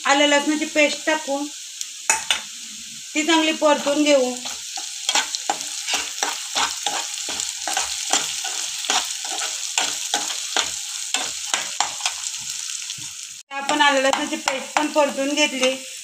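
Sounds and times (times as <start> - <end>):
onion sizzling in hot oil: 0.0 - 16.0
steel spoon scraping a pan: 3.7 - 16.0.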